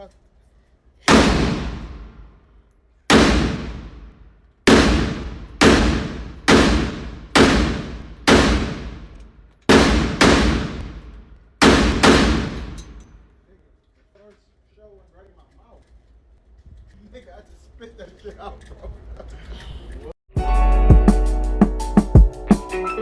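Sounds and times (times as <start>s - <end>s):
rifle shots: 1.1s - 2.4s, 3.1s - 13.2s.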